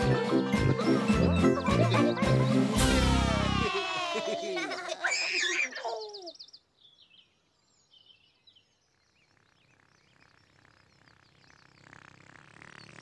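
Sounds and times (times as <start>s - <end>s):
faint bird chirps: 5.3s - 13.0s.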